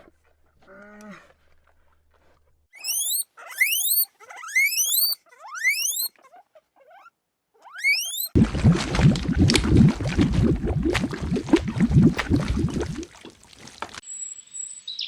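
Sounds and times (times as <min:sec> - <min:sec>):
animal squealing high-pitched: 0:02.8 - 0:08.4.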